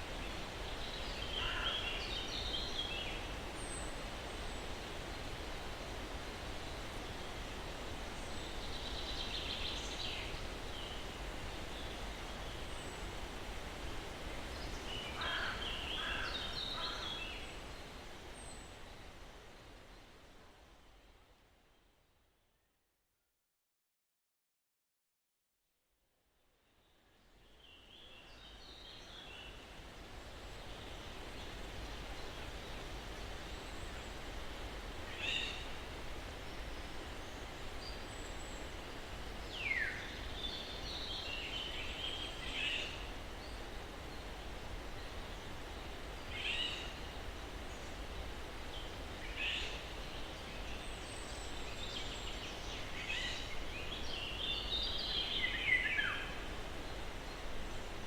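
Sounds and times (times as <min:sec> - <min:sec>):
breeze rustling through trees: 0:00.0 - 0:22.5, 0:26.5 - 0:58.0.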